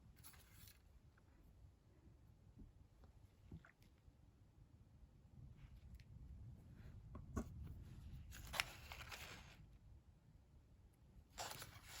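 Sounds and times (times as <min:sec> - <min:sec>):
low steady room hum: 0:00.0 - 0:12.0
paper rustle: 0:08.3 - 0:09.6, 0:11.4 - 0:12.0.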